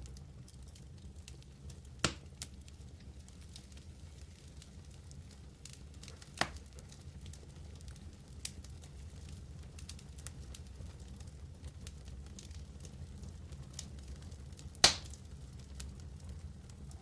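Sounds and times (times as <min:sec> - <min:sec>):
fire crackling: 0:00.0 - 0:17.0
wood fire burning: 0:00.0 - 0:17.0
sharp loud pops: 0:14.8 - 0:15.1.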